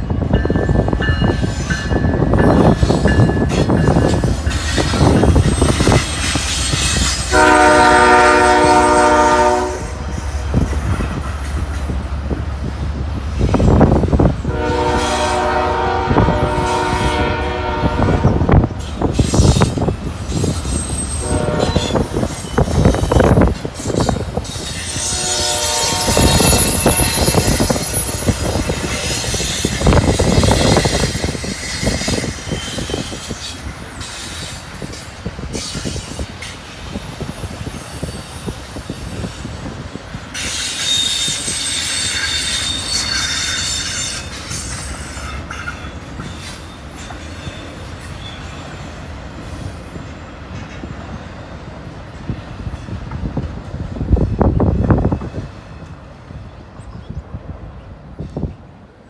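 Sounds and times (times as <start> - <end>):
freight train wheels rumbling: 0.0 - 59.0
diesel locomotive horn blasts: 5.8 - 10.7, 14.2 - 18.8, 21.2 - 22.3, 24.8 - 30.8
thin wheel squeal: 40.4 - 44.8.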